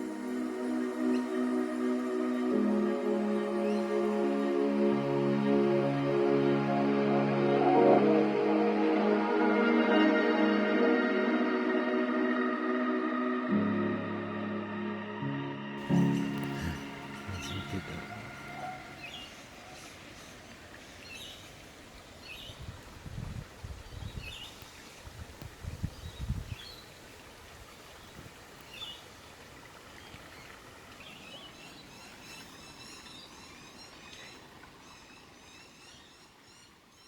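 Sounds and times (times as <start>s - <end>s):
running water hiss: 0.0s - 6.8s, 15.8s - 37.0s
fast high chirping chorus: 15.8s - 19.6s
bird chirps: 15.8s - 20.4s.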